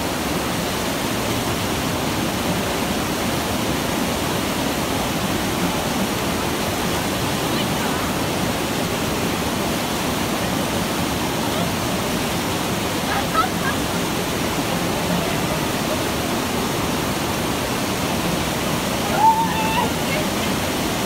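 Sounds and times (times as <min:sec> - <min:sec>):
river water rushing over weir: 0:00.0 - 0:21.0.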